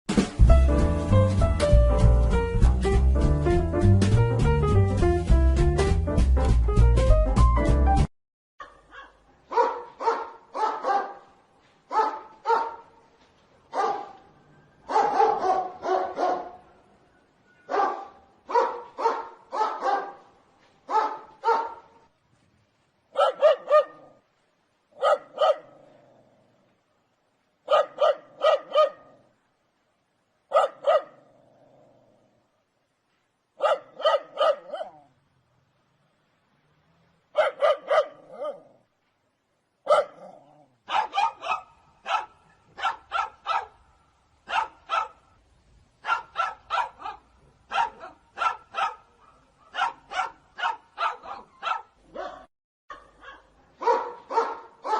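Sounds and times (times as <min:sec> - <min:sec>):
dog barking: 0:08.6 - 0:13.0, 0:13.7 - 0:14.2, 0:14.9 - 0:16.7, 0:17.6 - 0:20.3, 0:20.9 - 0:22.1, 0:23.1 - 0:24.2, 0:25.0 - 0:25.8, 0:27.6 - 0:29.2, 0:30.5 - 0:31.3, 0:33.6 - 0:35.1, 0:37.3 - 0:38.8, 0:39.8 - 0:45.4, 0:46.0 - 0:54.9.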